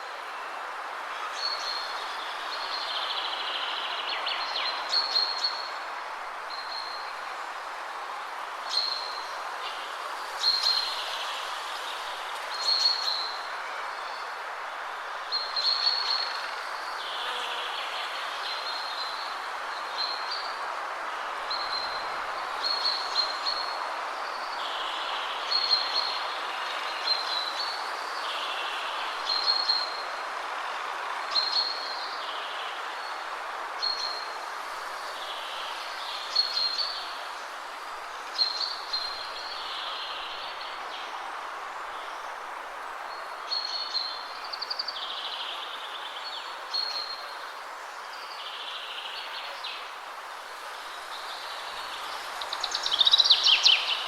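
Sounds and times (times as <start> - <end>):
wind through trees: 0.0 - 54.0
songbird singing: 1.2 - 5.8, 8.7 - 14.3, 21.2 - 30.2, 30.8 - 54.0.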